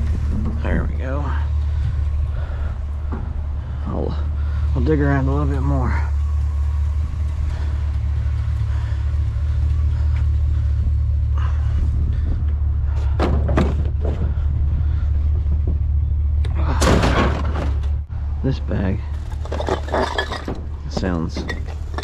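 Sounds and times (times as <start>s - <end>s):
steady low rumble: 0.0s - 22.0s
rustling and clattering trash: 19.1s - 22.0s.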